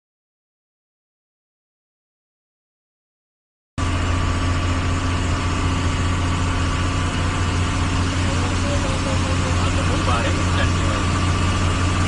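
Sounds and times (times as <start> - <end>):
vehicle engine idling: 3.8 - 12.0.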